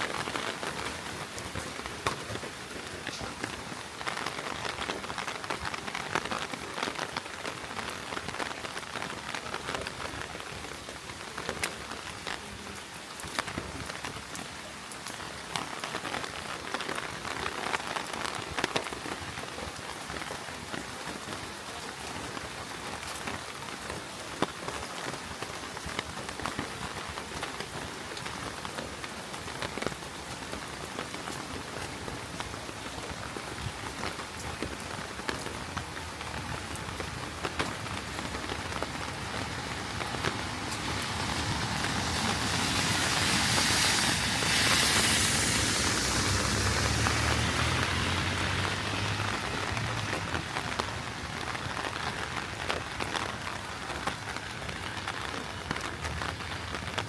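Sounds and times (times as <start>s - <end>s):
heavy rain on a street: 0.0s - 57.0s
rushing noise: 39.9s - 50.0s.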